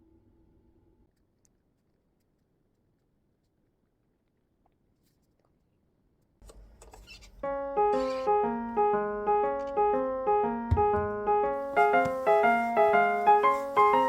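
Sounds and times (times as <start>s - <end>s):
piano-like keyboard melody: 7.4s - 14.0s.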